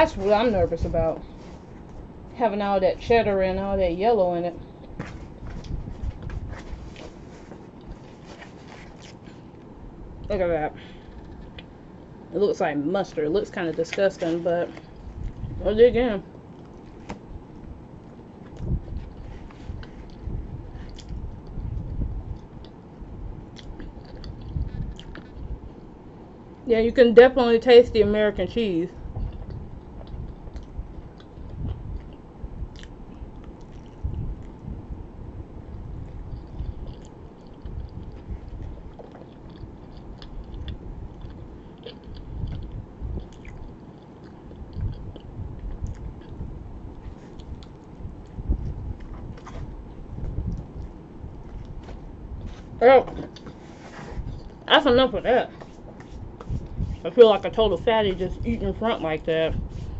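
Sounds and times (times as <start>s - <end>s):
person chewing food: 4.7s - 9.7s, 16.3s - 22.8s, 23.5s - 25.6s, 29.2s - 34.7s, 35.7s - 54.6s.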